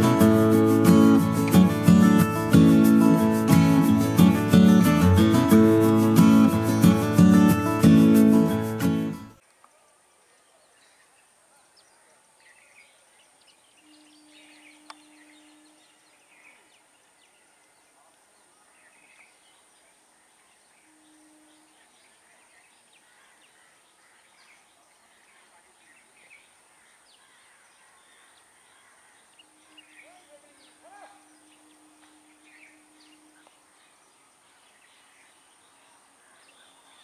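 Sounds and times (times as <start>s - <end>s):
high-pitched drone: 0.0s - 9.2s
bird calls: 10.4s - 37.0s.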